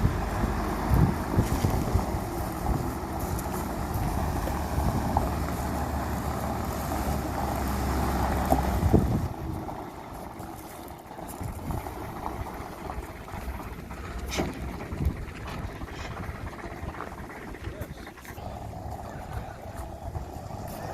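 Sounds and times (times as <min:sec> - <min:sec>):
wind on microphone: 0:00.0 - 0:05.5, 0:08.7 - 0:09.8
vehicle engine rumbling: 0:00.0 - 0:20.9.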